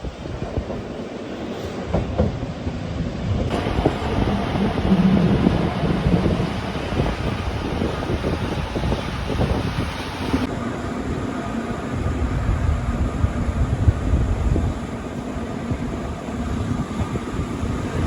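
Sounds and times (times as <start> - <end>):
train wheels rumbling on rail: 0.0 - 18.0
wind noise: 0.0 - 18.0.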